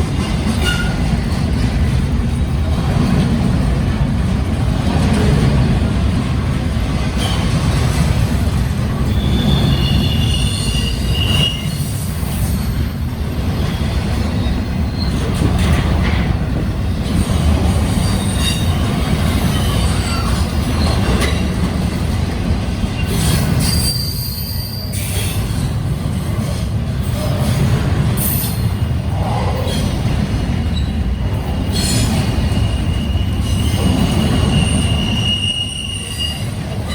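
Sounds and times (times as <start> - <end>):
freight train rumbling past: 0.0 - 36.9
high wheel squeals: 9.1 - 12.8, 23.0 - 25.4, 30.7 - 36.6.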